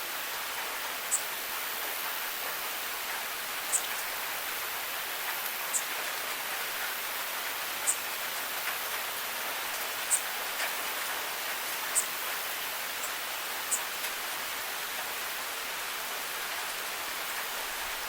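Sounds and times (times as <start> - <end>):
rain hiss: 0.0 - 18.0
sharp high drip ticks: 3.0 - 4.1, 5.2 - 9.0, 9.7 - 10.8, 11.5 - 12.2, 13.0 - 14.2.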